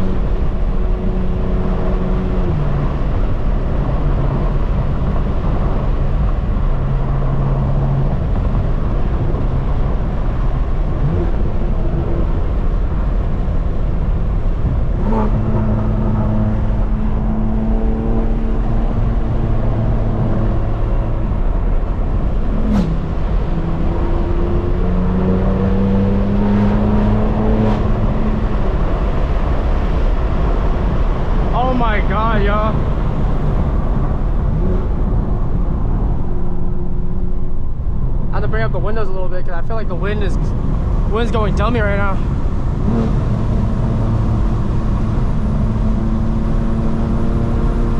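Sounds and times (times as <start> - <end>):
car engine running hard: 0.0 - 47.9
heavy wind: 0.0 - 47.9
road rumble: 0.0 - 47.9.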